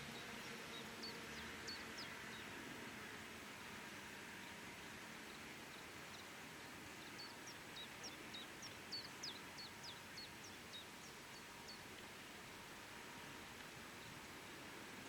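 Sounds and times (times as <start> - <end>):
faint background hiss: 0.0 - 15.0
small bird singing: 5.7 - 11.9.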